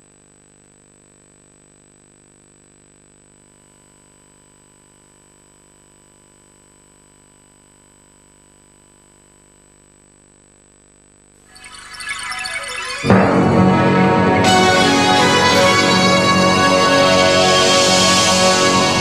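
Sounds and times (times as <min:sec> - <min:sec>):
thin high whine: 0:11.5 - 0:19.0.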